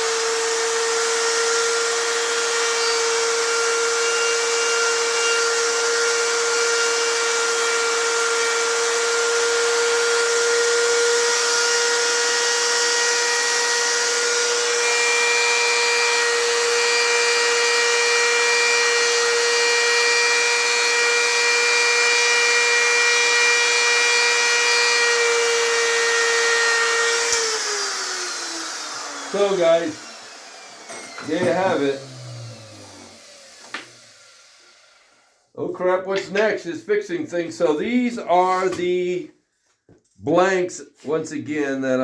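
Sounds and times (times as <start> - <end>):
die grinder whining: 0.0 - 35.4.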